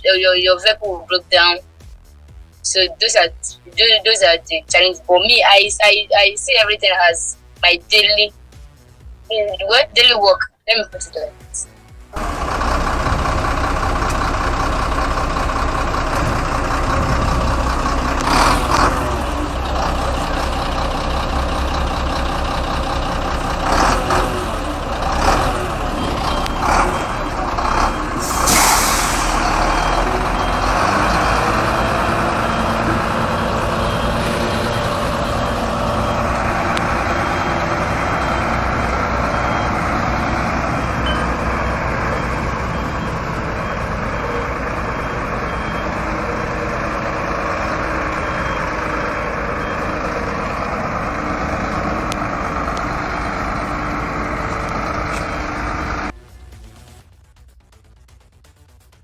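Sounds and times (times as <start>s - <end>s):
truck engine running: 0.0s - 59.0s
air hisses: 28.2s - 29.5s
faint high-pitched beeping: 36.9s - 50.6s.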